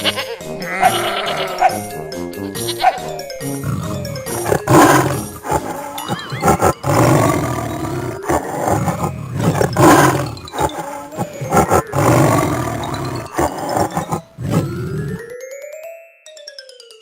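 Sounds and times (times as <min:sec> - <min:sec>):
big cat roaring: 0:02.9 - 0:15.2.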